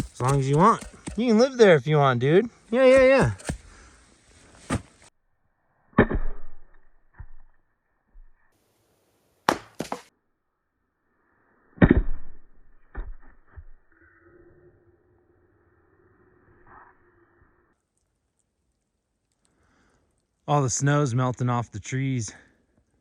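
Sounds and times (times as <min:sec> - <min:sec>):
firewood logs knocking: 0:00.0 - 0:01.4, 0:02.9 - 0:03.8, 0:09.5 - 0:10.1.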